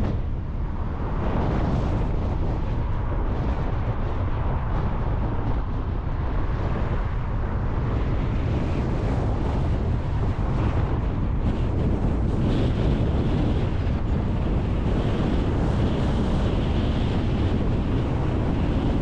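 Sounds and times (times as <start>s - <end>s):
car road and engine rumble: 0.0s - 19.0s
wind buffeting: 0.0s - 19.0s.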